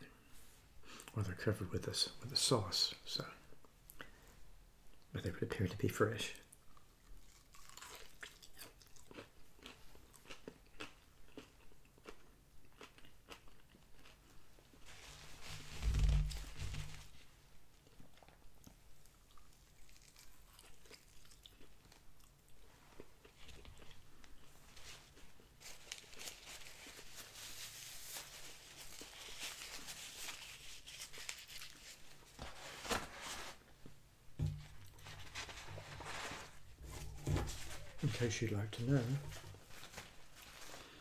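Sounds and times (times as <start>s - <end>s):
crunchy chewing: 6.6s - 14.9s, 17.8s - 26.8s
paper napkin rustling: 14.8s - 17.3s, 24.6s - 33.8s, 34.6s - 41.0s.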